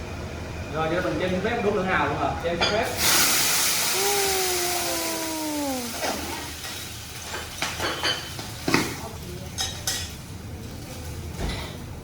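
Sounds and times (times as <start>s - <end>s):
oysters sizzling on a griddle: 2.7s - 11.4s.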